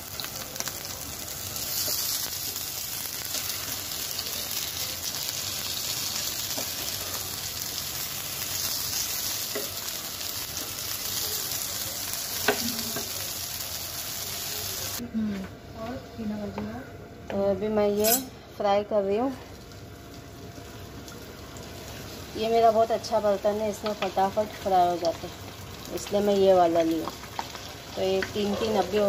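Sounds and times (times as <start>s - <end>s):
patties sizzling in oil: 0.0s - 15.0s, 18.8s - 29.0s
metal spatula turning food: 26.0s - 29.0s.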